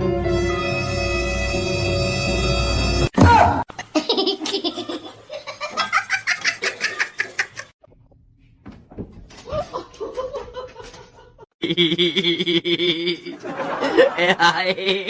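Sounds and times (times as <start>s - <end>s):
person laughing hard: 9.5s - 15.0s.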